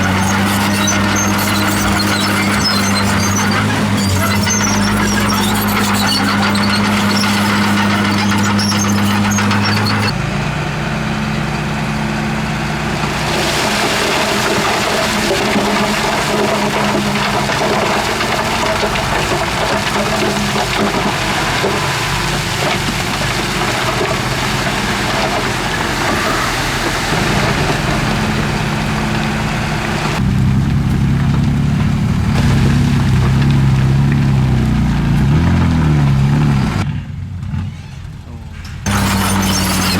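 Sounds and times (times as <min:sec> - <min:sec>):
high scratchy sounds: 0:00.0 - 0:10.2, 0:38.9 - 0:39.9
heavy machinery diesel engine: 0:00.0 - 0:39.9.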